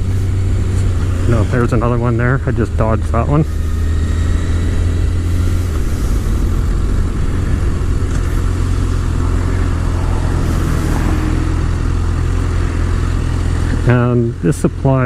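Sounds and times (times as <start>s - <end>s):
motorcycle engine running: 0.0s - 15.0s
wind over microphone: 3.6s - 13.3s.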